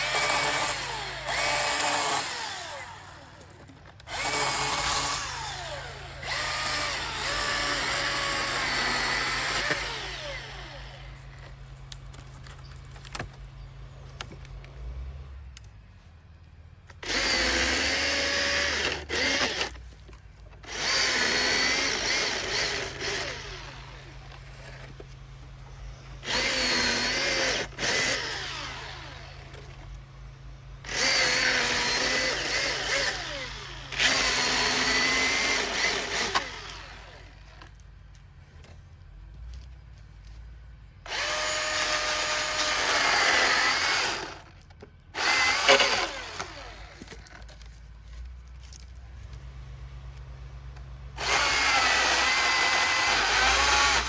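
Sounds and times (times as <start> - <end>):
electric chainsaw motor whine: 0.0 - 11.3, 17.0 - 20.0, 20.6 - 25.1, 26.1 - 30.0, 30.8 - 37.8, 41.0 - 48.9, 51.2 - 54.0.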